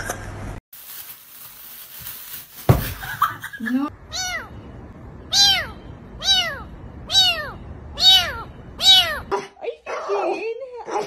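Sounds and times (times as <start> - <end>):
kitten meowing: 5.3 - 9.3.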